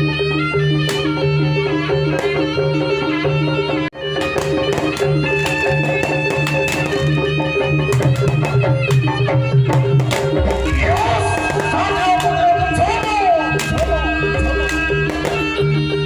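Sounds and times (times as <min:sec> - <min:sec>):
sliding melody line: 0:00.0 - 0:16.0
sustained instrumental tones: 0:00.0 - 0:16.0
hand-drum percussion: 0:04.0 - 0:16.0.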